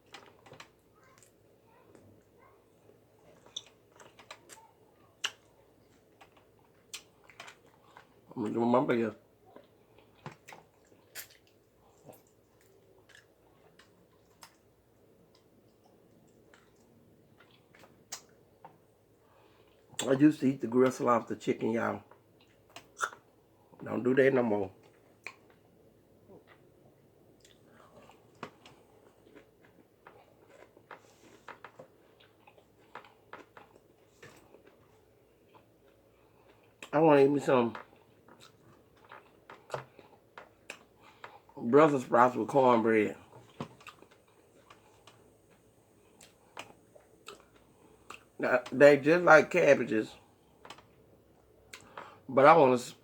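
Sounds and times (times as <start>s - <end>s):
soft chewing: 0.0s - 20.1s, 22.0s - 23.8s, 24.7s - 37.0s, 37.6s - 42.4s, 43.1s - 48.8s, 50.1s - 52.3s
wet clicks and lip smacks: 5.2s - 5.5s, 10.1s - 14.7s, 15.3s - 18.4s, 22.4s - 23.3s, 24.8s - 25.6s
mouth clicks and smacks: 17.4s - 18.4s, 22.4s - 23.3s.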